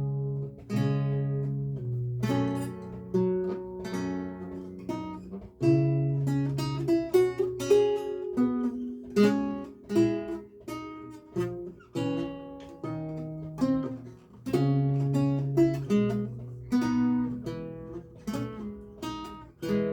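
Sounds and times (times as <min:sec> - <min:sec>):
lute playing plucked notes: 0:00.0 - 0:19.9.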